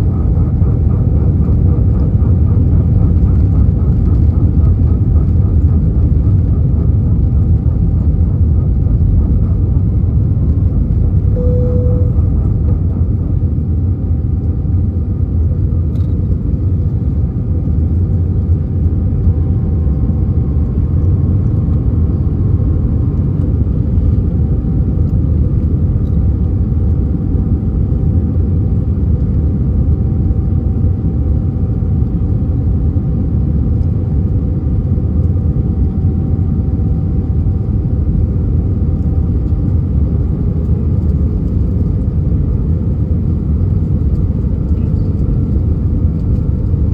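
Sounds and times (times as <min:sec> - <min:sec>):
aircraft cabin rumble: 0:00.0 - 0:46.9
faint steady whine: 0:11.2 - 0:13.5.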